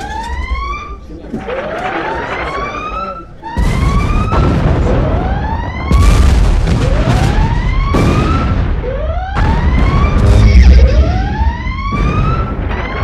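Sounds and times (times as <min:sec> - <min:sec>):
siren sweeping up in pitch: 0:00.0 - 0:13.0
explosions booming: 0:03.5 - 0:13.0.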